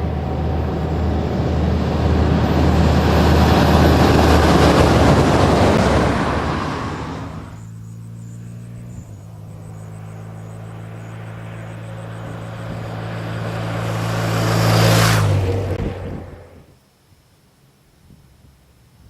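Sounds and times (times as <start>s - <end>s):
rush of wind noise: 0.0s - 7.6s, 11.3s - 16.8s
vehicle engine hum: 0.0s - 16.8s.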